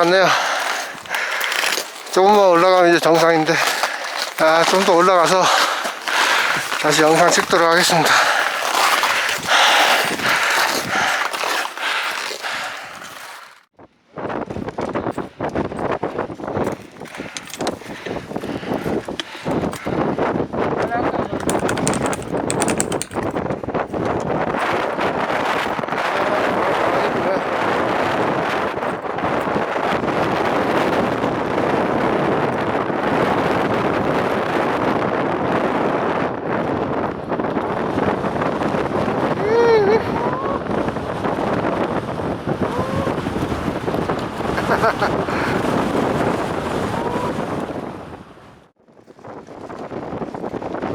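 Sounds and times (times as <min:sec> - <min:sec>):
wind buffeting microphone: 0:00.0 - 0:12.6, 0:13.8 - 0:50.9.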